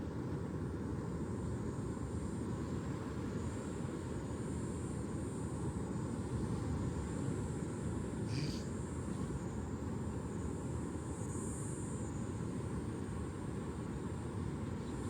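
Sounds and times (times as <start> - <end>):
thin high hiss: 8.3 - 8.7.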